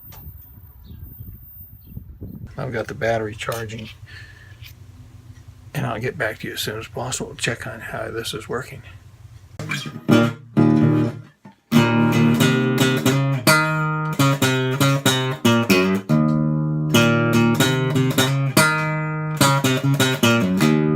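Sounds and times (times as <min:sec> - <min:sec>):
acoustic guitar strummed and plucked: 0:09.6 - 0:20.9.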